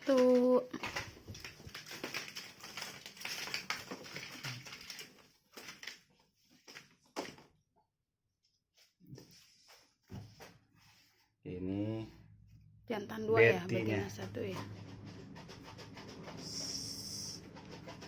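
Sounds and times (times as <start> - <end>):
crackling and rustling of box: 0.0 - 7.5.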